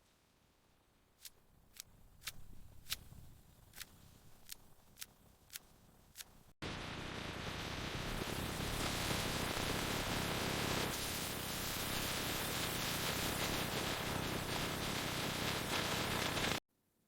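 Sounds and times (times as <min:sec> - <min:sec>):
static hiss: 0:06.2 - 0:16.6.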